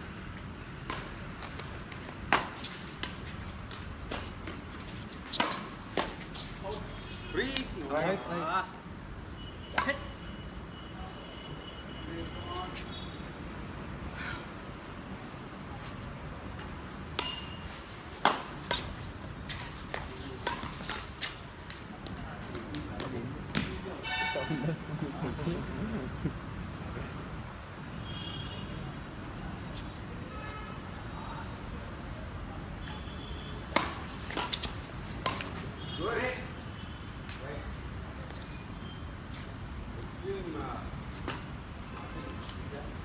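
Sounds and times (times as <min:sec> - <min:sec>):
badminton rackets hitting shuttlecock: 0:33.6 - 0:35.6.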